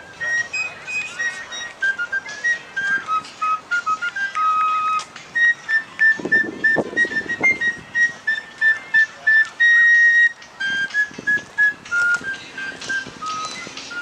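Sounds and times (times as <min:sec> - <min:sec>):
high whistle notes: 0:00.0 - 0:14.0.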